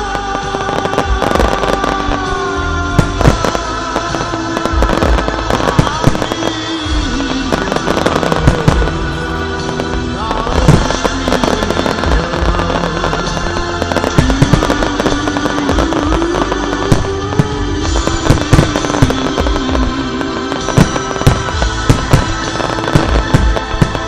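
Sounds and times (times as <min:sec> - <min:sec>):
fireworks bangs and crackles: 0:00.0 - 0:24.0
loud music with long notes: 0:00.0 - 0:24.0.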